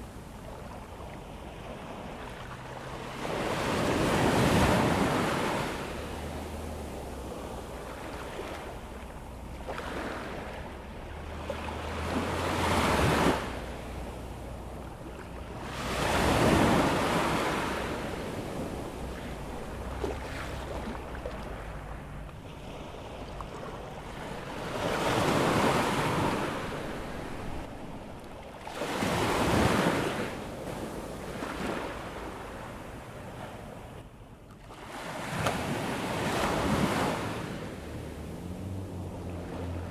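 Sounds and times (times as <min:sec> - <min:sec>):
surf breaking on beach: 0:03.2 - 0:32.4.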